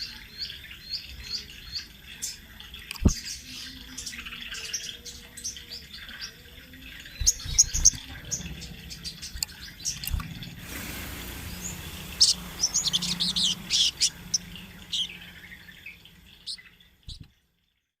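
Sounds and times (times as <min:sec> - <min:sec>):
songbird chirping: 0:00.0 - 0:17.4.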